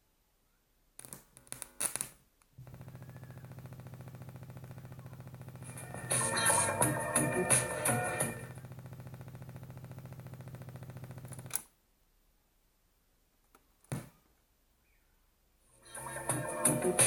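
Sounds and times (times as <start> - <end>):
fast even clicking from speakers: 2.6 - 5.9, 8.4 - 11.6.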